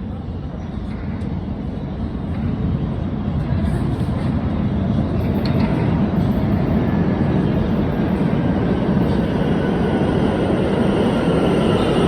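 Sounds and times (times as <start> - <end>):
subway train rumbling: 0.0 - 12.0
steel wheels squealing on rails: 3.6 - 12.0.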